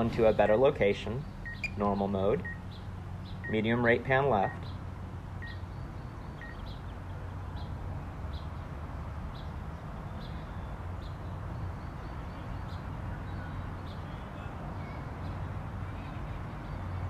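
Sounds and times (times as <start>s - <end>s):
small bird chirping: 0.0s - 4.8s, 5.4s - 8.5s.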